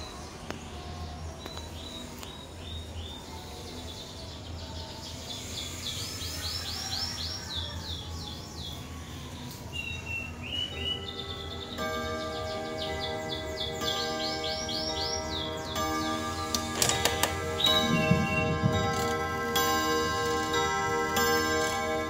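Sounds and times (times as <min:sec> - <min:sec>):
birds chirping: 0:00.0 - 0:22.0
steady low hum: 0:11.8 - 0:22.0.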